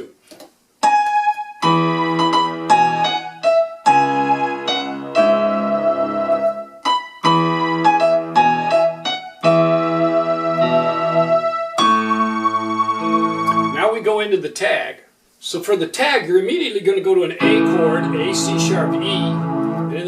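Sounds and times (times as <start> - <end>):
electronic keyboard playing hymn: 0.8 - 14.0, 17.4 - 20.0.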